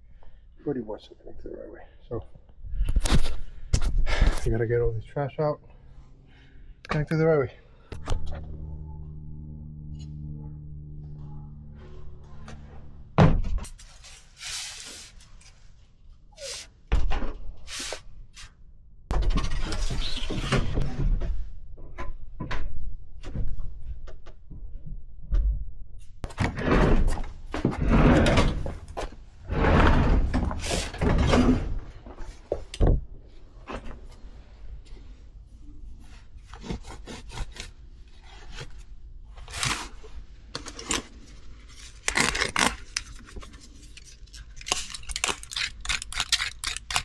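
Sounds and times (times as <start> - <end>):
ducting scraping and rustling: 26.2 - 32.7.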